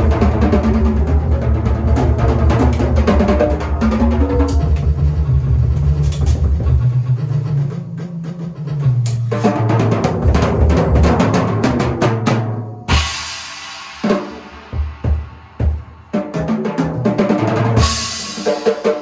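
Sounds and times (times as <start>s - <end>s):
fast drum strokes: 0.0s - 19.0s
cymbal crash ringing: 17.8s - 19.0s.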